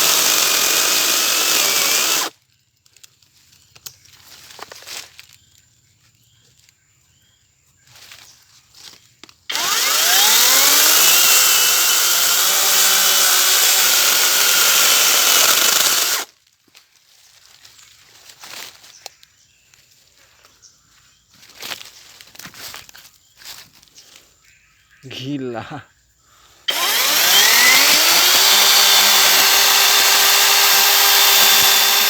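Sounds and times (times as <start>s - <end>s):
cordless chainsaw whining: 0.0s - 2.3s, 9.5s - 16.3s, 26.7s - 32.0s.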